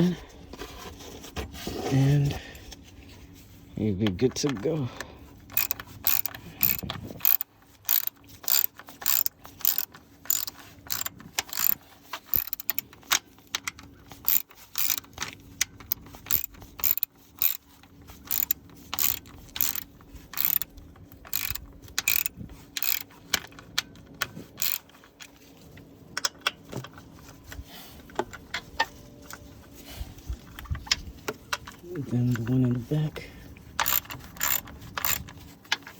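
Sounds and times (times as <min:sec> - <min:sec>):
ratchet wrench clicking: 0:05.5 - 0:23.6, 0:24.6 - 0:25.0, 0:33.8 - 0:35.3.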